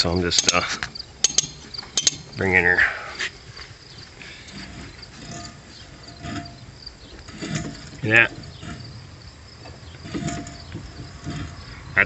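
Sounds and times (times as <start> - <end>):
sharp metallic clicks: 0.0 - 2.6
faint scraping and ticking: 0.0 - 12.0.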